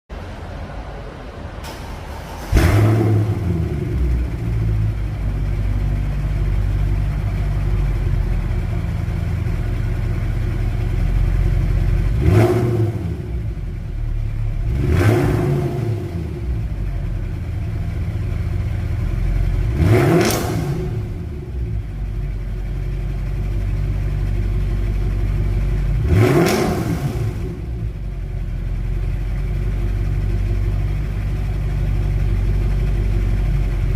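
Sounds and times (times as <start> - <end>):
car engine starting and idling: 0.1 - 33.9
engine throttle blips: 1.5 - 33.9.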